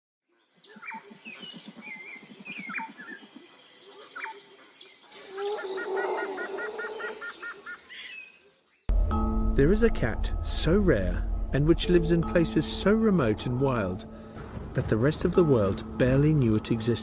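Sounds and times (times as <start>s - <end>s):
fast low pulsing bird call: 5.2s - 7.7s.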